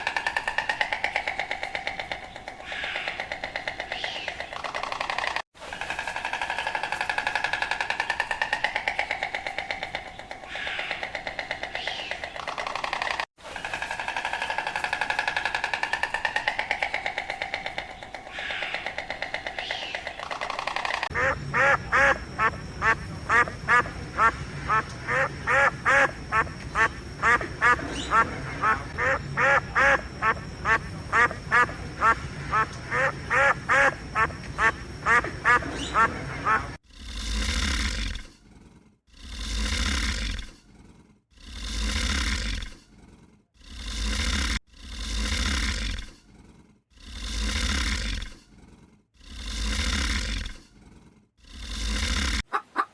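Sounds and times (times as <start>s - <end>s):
drawn-out animal call: 16.4s - 36.8s, 52.4s - 52.9s
duck quacking rapidly: 21.1s - 36.8s, 52.5s - 52.9s.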